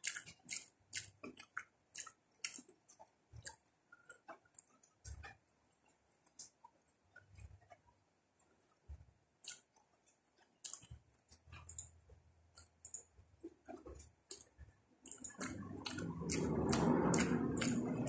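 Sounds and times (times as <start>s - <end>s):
wet mouth clicks and lip smacks: 0.0s - 5.3s, 9.4s - 9.8s, 10.6s - 12.0s, 12.6s - 18.0s.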